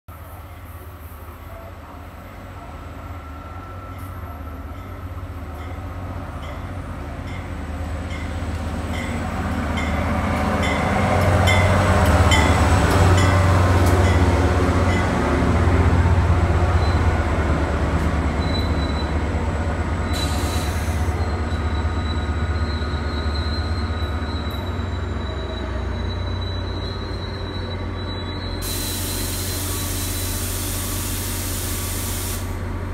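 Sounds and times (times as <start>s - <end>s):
locomotive engine and wheel rumble: 0.1s - 32.9s
high brake squeal: 16.7s - 17.2s, 18.3s - 19.4s, 20.0s - 32.7s
air hiss: 28.6s - 32.7s.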